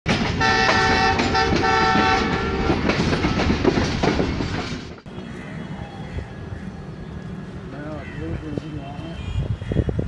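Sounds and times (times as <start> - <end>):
train wheels clacking on rails: 0.1 - 5.1
train horn blasts: 0.4 - 2.8.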